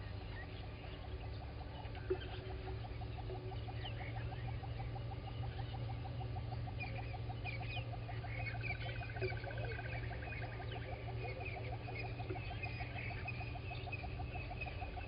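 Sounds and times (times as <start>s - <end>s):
bird chirps: 0.0s - 15.0s
constant low hum: 0.0s - 15.0s.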